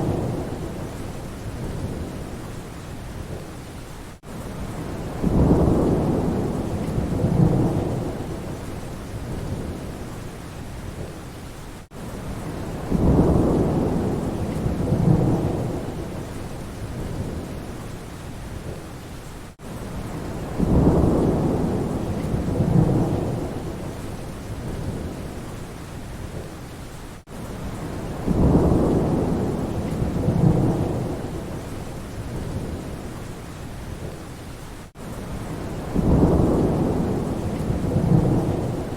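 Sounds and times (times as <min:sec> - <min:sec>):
rain falling: 0:00.0 - 0:38.9
thunder rolling: 0:28.1 - 0:31.7, 0:35.7 - 0:38.9.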